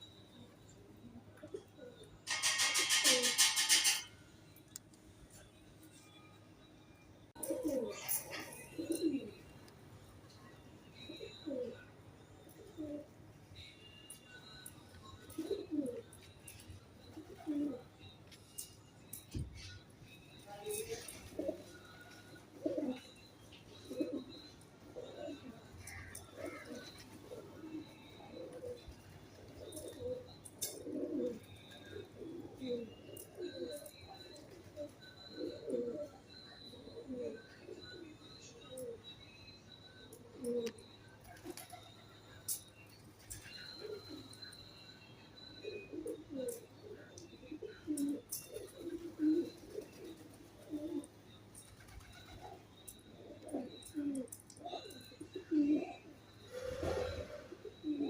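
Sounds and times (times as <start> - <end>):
pigeons cooing: 1.1 - 4.1, 7.4 - 9.5, 11.1 - 11.8, 12.6 - 13.2, 15.2 - 16.2, 17.1 - 17.9, 20.6 - 23.1, 23.7 - 39.0, 40.1 - 42.2, 43.3 - 44.4, 45.6 - 58.0.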